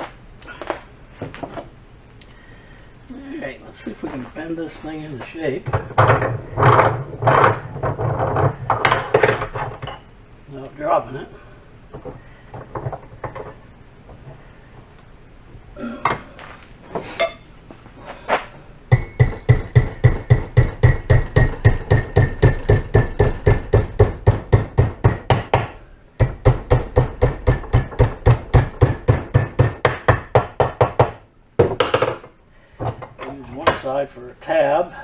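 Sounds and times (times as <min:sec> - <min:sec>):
hammer striking metal strip: 0:18.9 - 0:31.2.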